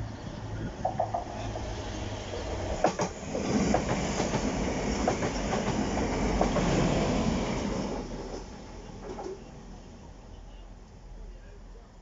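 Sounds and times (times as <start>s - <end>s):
train wheels rolling on rails: 0.4s - 9.7s.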